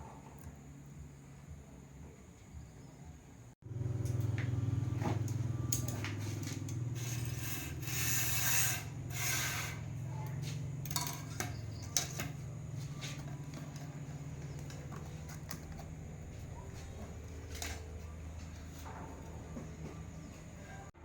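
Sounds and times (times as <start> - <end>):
steady low hum: 0.0 - 21.0
scraping and rubbing: 6.2 - 19.0.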